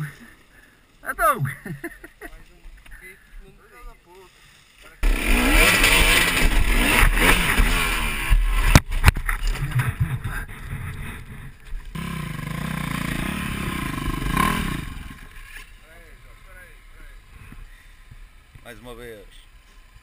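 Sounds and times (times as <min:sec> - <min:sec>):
dirt bike engine revving: 0:05.0 - 0:08.8, 0:11.0 - 0:15.7.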